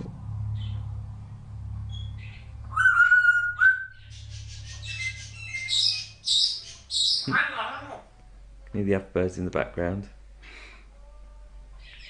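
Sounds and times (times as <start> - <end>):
low steady hum: 0.0 - 12.0
birds chirping in background: 0.3 - 9.0, 11.7 - 12.0
parrot whistling and chirping: 1.9 - 8.0.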